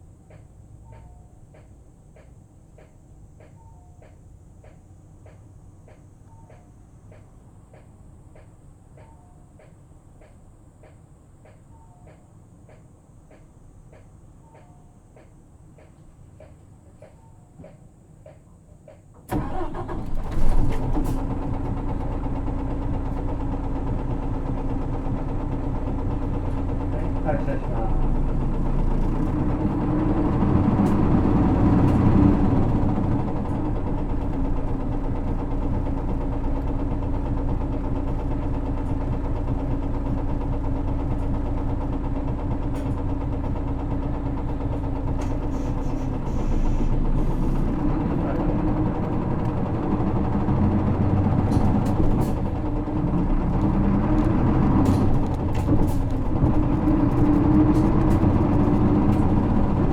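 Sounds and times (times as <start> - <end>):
diesel bus engine: 0.0 - 11.7, 12.3 - 59.9.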